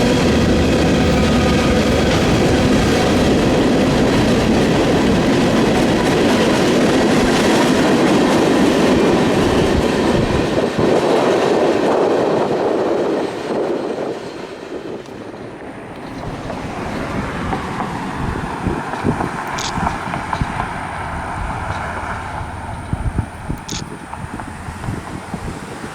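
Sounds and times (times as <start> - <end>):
train wheels clacking over rails: 0.0 - 25.9
wind buffeting microphone: 0.0 - 25.9.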